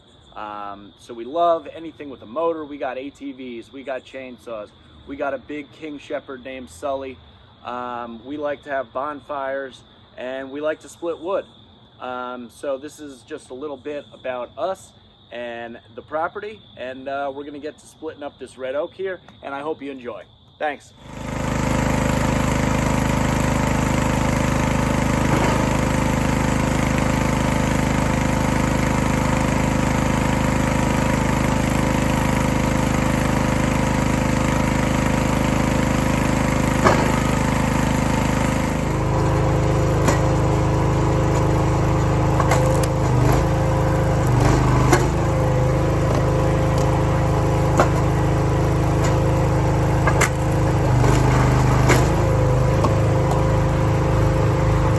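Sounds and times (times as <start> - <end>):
log splitter engine running: 21.0 - 54.9
wood cracking as logs split: 39.0 - 54.4.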